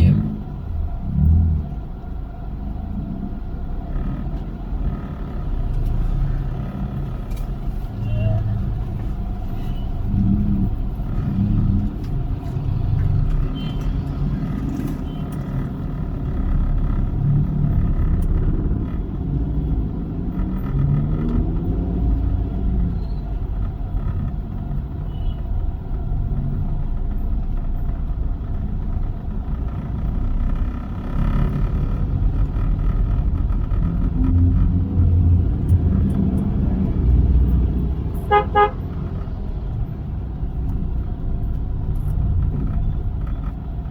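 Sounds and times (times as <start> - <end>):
car engine and road noise: 0.0 - 43.9
car horn toots: 38.2 - 39.0.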